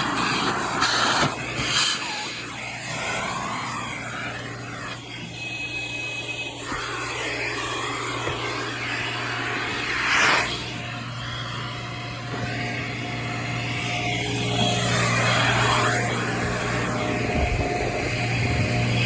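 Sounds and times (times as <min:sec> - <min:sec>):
air rushing through vacuum hose: 0:00.0 - 0:05.0, 0:06.6 - 0:12.9
vacuum motor hum: 0:00.0 - 0:19.0.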